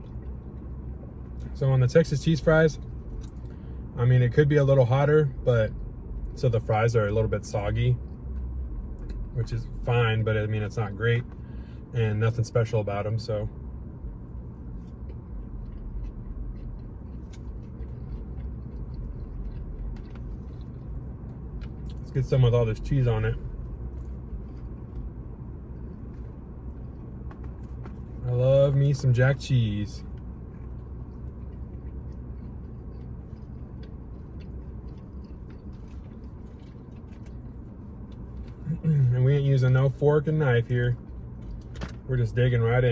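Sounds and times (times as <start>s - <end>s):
steady low hum: 0.0s - 42.9s
steady low rumble: 0.0s - 42.9s
person chewing: 2.8s - 3.7s, 14.2s - 22.1s, 23.4s - 28.2s, 30.0s - 39.0s.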